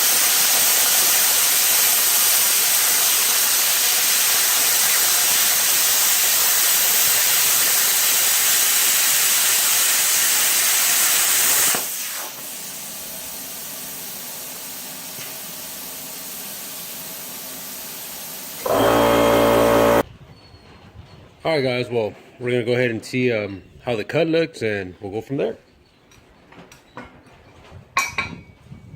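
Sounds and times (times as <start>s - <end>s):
plasma cutter arc hissing: 0.0s - 20.0s.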